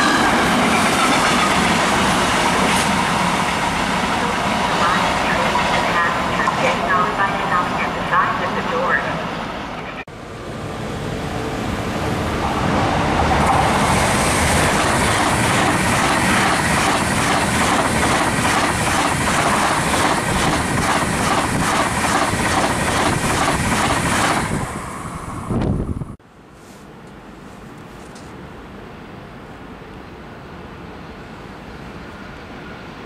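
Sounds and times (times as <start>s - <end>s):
electric train passing: 0.0s - 26.2s, 28.4s - 33.0s.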